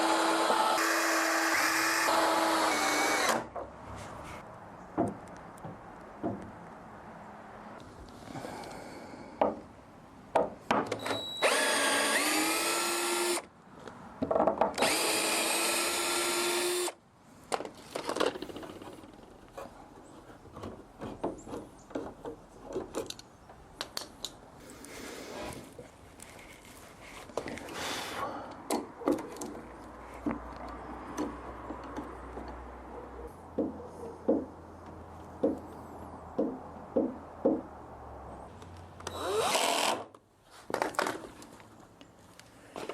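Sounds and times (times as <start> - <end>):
power drill driving screws: 0.0 - 3.5, 11.0 - 13.5, 14.8 - 17.0, 39.0 - 40.1
wood and tools knocking: 5.0 - 6.6, 10.3 - 11.0, 14.2 - 14.9, 17.5 - 23.2, 33.5 - 35.7, 36.3 - 37.7.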